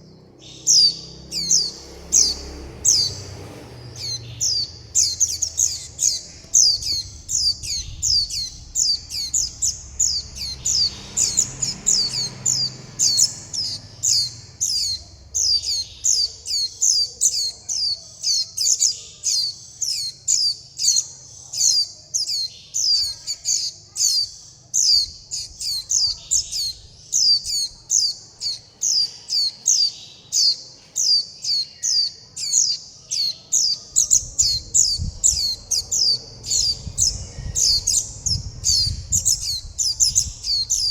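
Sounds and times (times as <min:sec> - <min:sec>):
fledgling begging calls: 0:00.0 - 0:40.9.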